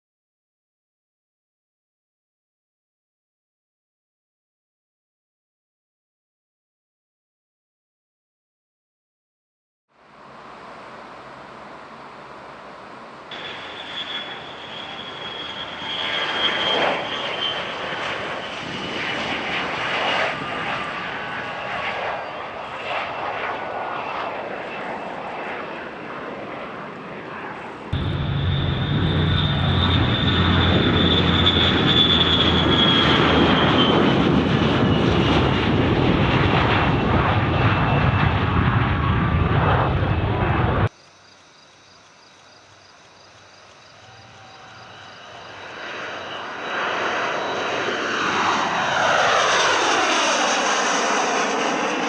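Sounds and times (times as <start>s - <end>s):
turbofan engine whine: 9.9s - 27.3s, 28.0s - 40.9s, 43.3s - 52.0s
deep rumble: 28.0s - 33.5s, 35.5s - 40.9s.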